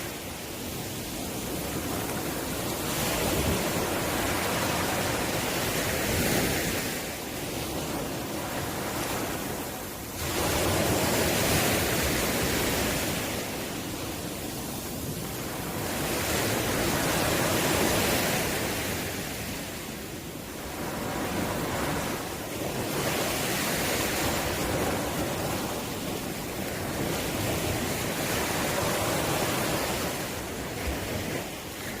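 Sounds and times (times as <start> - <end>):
ocean waves breaking on shore: 0.0 - 32.0
wind on microphone: 0.0 - 32.0.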